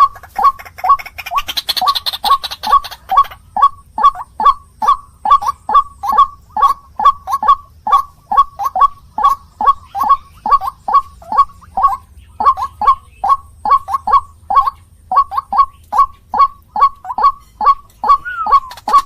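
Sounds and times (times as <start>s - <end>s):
waterhen croaking calls: 0.0s - 19.0s.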